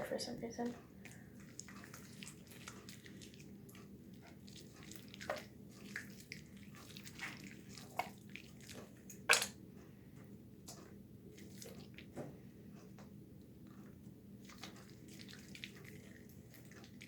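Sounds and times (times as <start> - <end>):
soapy hands washing: 1.0 - 9.5, 11.3 - 12.2, 14.4 - 17.0.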